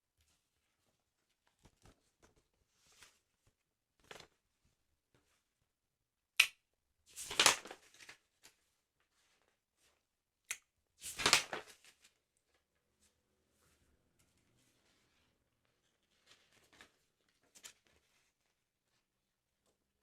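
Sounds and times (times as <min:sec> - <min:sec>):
crisp paper rustling: 0:07.2 - 0:09.6, 0:11.0 - 0:12.6, 0:14.8 - 0:19.0.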